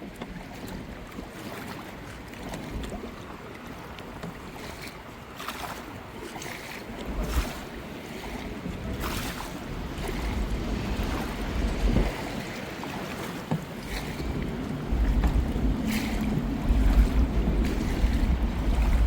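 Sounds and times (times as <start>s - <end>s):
paddles splashing in water: 0.0s - 19.0s
wind on microphone: 2.4s - 19.0s.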